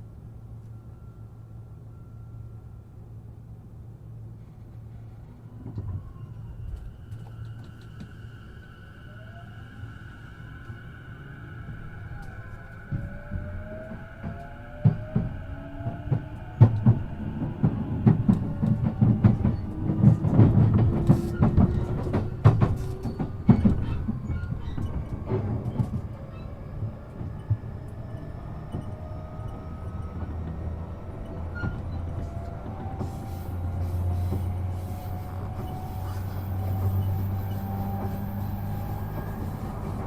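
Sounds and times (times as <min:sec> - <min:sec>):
train running rumble: 0:00.0 - 0:40.0
train wheels clattering over joints: 0:14.2 - 0:40.0.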